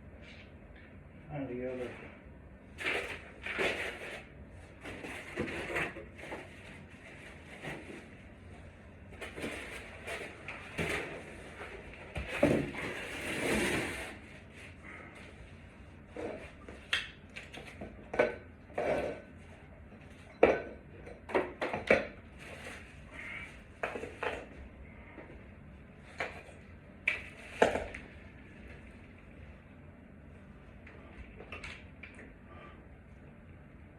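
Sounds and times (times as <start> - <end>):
scraping and rustling: 9.1 - 15.2.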